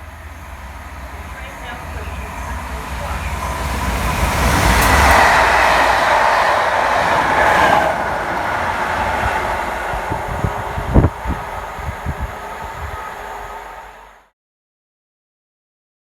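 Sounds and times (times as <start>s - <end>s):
train passing through station: 0.0s - 14.3s.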